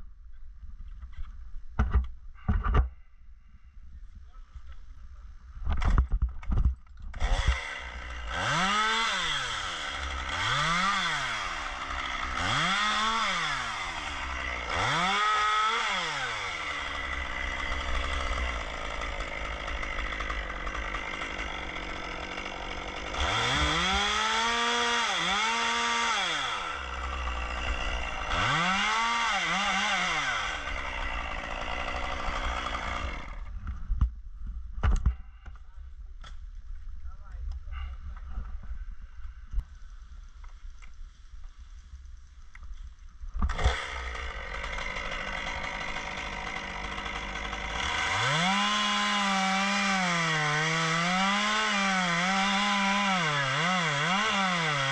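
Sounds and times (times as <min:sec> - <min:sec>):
chainsaw revving: 0:07.2 - 0:33.5, 0:43.5 - 0:54.9.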